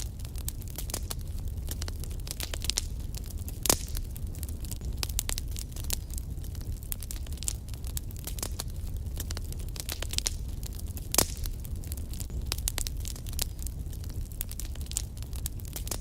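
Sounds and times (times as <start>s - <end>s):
low rumble of flames: 0.0s - 16.0s
wood fire crackles and pops: 0.0s - 16.0s.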